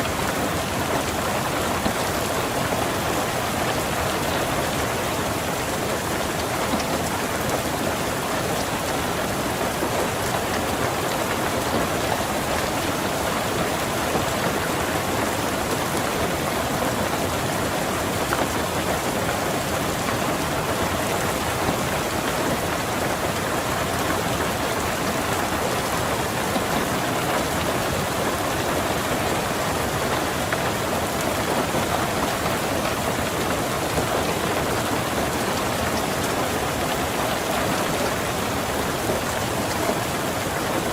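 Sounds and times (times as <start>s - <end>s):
rain falling on a car: 0.0s - 40.9s.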